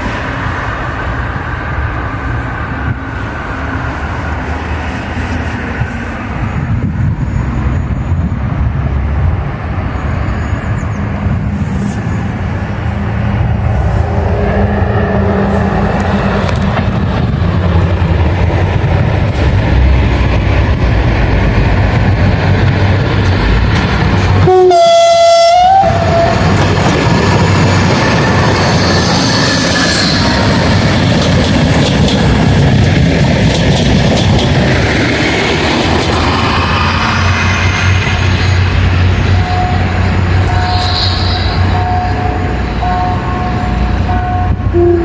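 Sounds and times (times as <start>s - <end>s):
train rumbling on rails: 0.0s - 45.0s
train horn: 24.4s - 26.4s, 40.5s - 45.0s.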